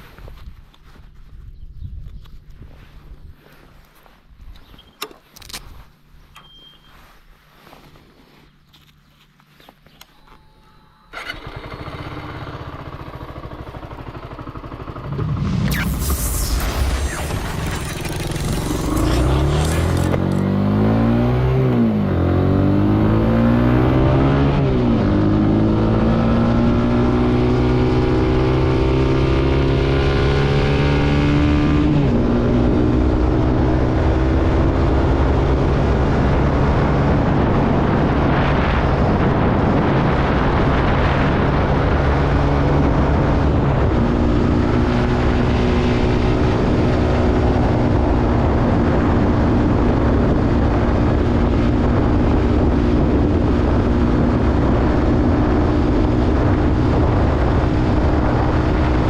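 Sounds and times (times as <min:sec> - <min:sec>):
motorcycle engine under way: 0:11.1 - 0:59.0
wind rush: 0:14.9 - 0:20.5, 0:35.3 - 0:59.0.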